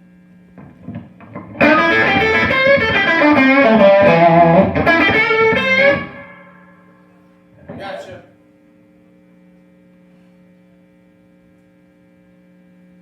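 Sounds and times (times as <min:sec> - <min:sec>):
amplifier hum: 0:00.0 - 0:13.0
electric guitar lead notes: 0:00.6 - 0:07.0.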